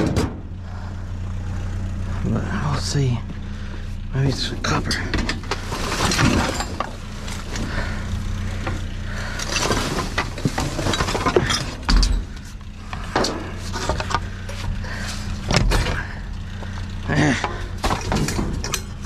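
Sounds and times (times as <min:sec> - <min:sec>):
steady low hum: 0:00.0 - 0:19.0
clinks and clatter of scrap: 0:04.3 - 0:19.0.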